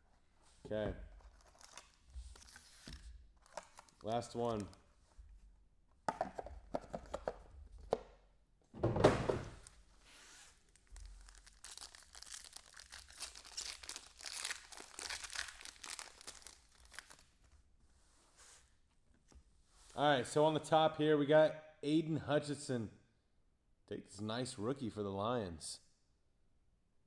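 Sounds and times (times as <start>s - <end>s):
foil wrapper crinkling: 1.2s - 4.8s, 9.6s - 17.5s
foil wrapper tearing: 1.3s - 4.7s, 10.5s - 17.3s.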